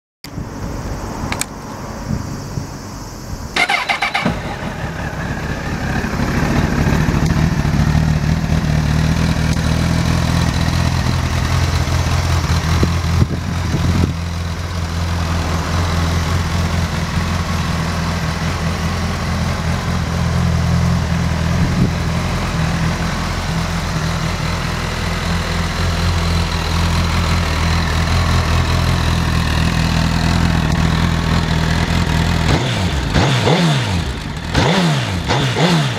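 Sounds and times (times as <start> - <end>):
motorcycle electric starter: 3.6 - 7.9
motorcycle engine idling: 3.6 - 35.7.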